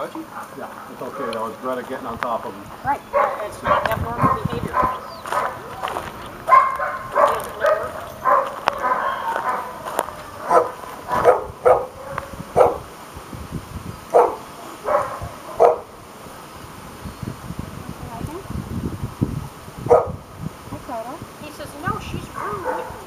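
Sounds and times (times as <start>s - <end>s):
dog barking: 0.3s - 1.2s, 3.1s - 12.9s, 14.1s - 16.0s, 19.9s - 20.2s, 22.3s - 23.0s.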